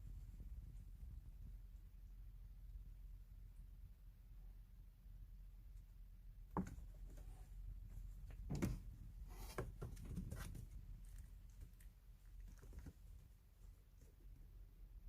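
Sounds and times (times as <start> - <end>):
kittens tapping and rustling: 6.5 - 14.3.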